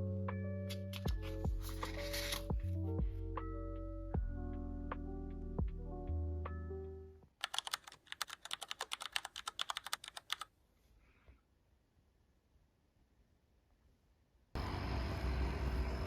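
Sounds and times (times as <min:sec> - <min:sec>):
background music with sustained notes: 0:00.0 - 0:07.2
fast typing on computer keyboard: 0:07.4 - 0:10.5.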